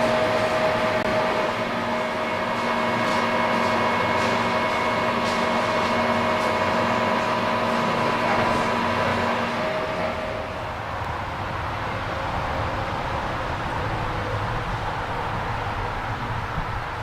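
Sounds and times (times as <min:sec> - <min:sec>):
train mechanical hum: 0:00.0 - 0:17.0.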